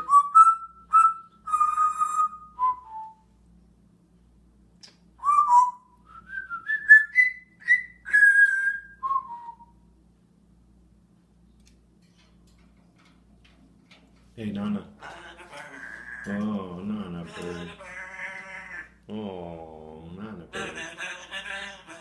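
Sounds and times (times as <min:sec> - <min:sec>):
talking bird whistling: 0:00.0 - 0:03.2, 0:05.2 - 0:09.7.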